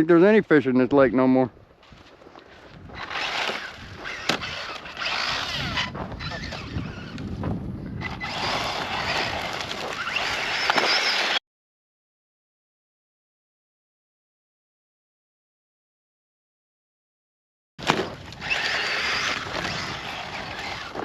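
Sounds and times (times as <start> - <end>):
tyres scraping loose ground: 1.8 - 11.4, 17.8 - 21.0
electric motor whine: 2.9 - 7.3, 8.0 - 11.4, 18.2 - 21.0.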